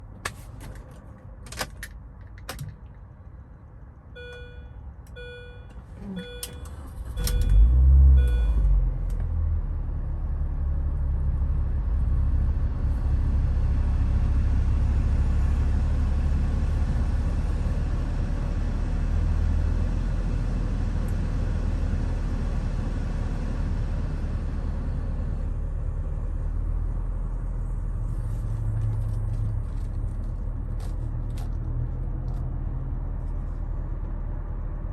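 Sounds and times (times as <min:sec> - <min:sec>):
car engine starting and idling: 0:05.1 - 0:17.6.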